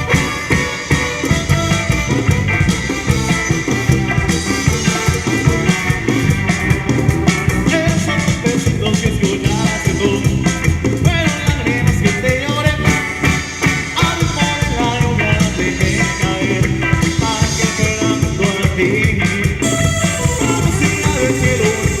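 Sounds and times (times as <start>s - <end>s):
band playing latin dance music: 0.0s - 22.0s
person singing: 7.6s - 13.0s, 14.0s - 22.0s.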